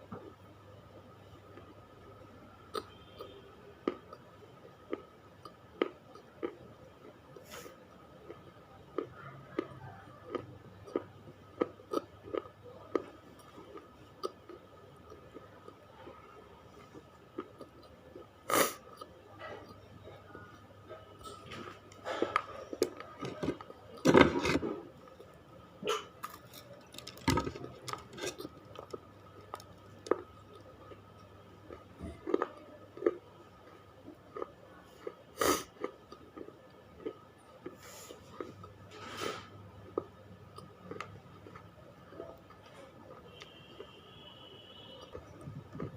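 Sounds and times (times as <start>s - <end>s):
person chewing crunchy chips: 10.3s - 16.1s, 21.2s - 41.6s.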